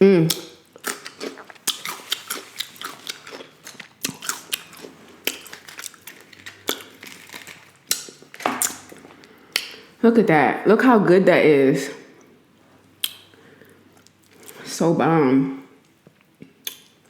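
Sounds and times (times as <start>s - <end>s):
person chewing food: 0.3s - 9.8s, 12.2s - 14.6s.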